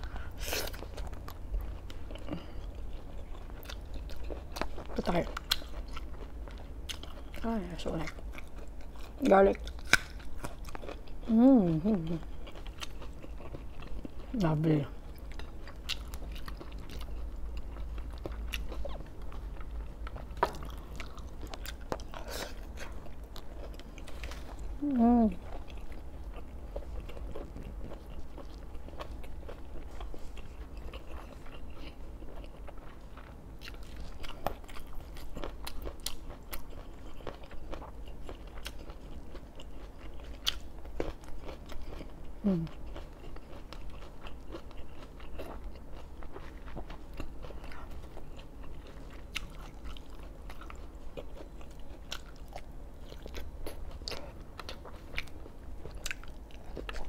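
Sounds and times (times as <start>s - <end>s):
person chewing crunchy food: 0.0s - 57.0s
person humming: 11.3s - 12.2s, 24.8s - 25.4s, 42.4s - 42.7s.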